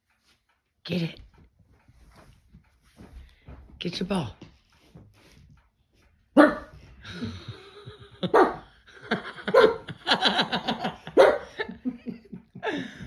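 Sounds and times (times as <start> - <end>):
small dog barking: 6.4 - 6.8, 8.3 - 8.7, 9.5 - 9.9, 11.1 - 11.6.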